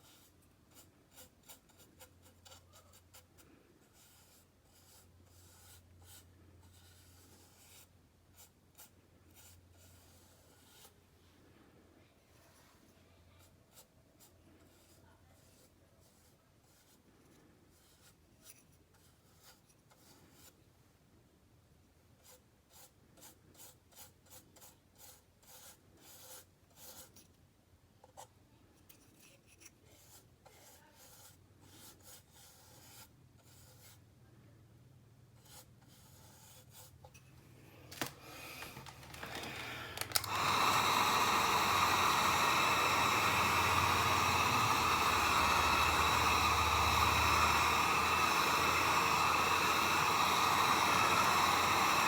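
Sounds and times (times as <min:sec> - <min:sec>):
paint brush rubbing on plastic: 0:00.0 - 0:11.0, 0:12.4 - 0:20.6, 0:22.2 - 0:27.3, 0:28.9 - 0:34.1, 0:35.3 - 0:37.4
loud blowing hiss: 0:38.2 - 0:52.0.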